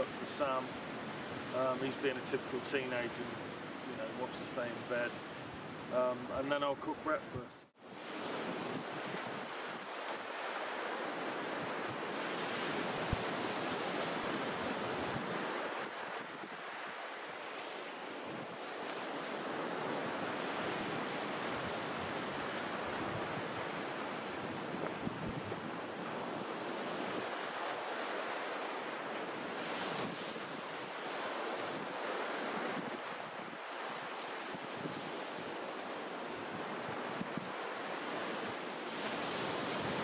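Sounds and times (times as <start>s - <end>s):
waves washing onto shore: 0.0s - 40.0s
wind on microphone: 19.4s - 27.5s, 29.4s - 30.7s, 34.4s - 40.0s.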